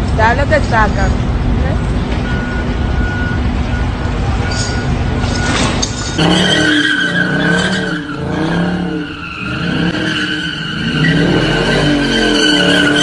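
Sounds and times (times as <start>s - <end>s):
car engine revving: 2.2s - 13.0s
tire squeal: 4.3s - 13.0s.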